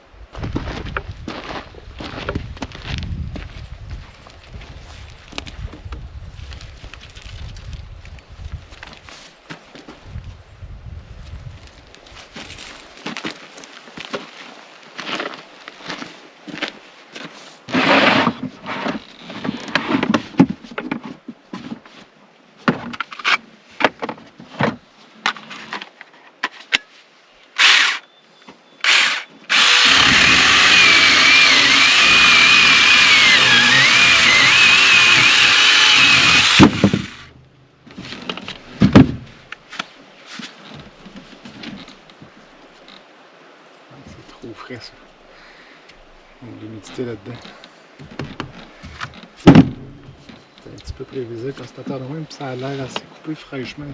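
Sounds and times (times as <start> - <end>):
wood being handled: 12.0 - 14.3, 28.8 - 43.1
chainsaw cutting log: 27.6 - 28.0, 28.8 - 37.3.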